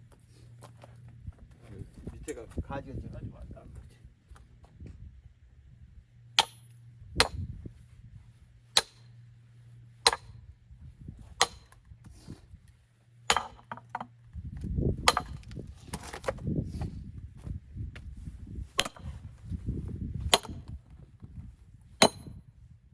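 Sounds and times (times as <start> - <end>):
axe chopping firewood: 6.4 - 7.5, 8.8 - 9.1, 10.0 - 10.4, 11.3 - 11.8, 13.3 - 14.1, 15.0 - 16.4, 18.8 - 19.2, 20.2 - 20.8, 22.0 - 22.4.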